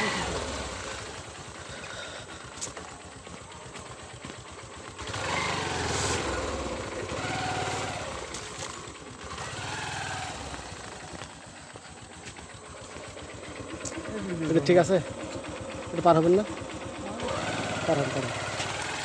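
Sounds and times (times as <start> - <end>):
small vehicle engine revving: 0.0 - 19.0.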